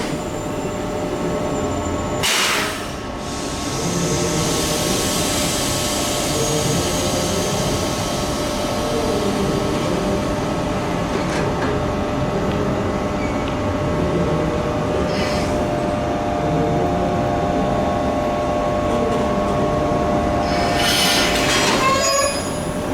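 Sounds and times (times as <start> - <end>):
electric train humming: 7.2 - 22.9.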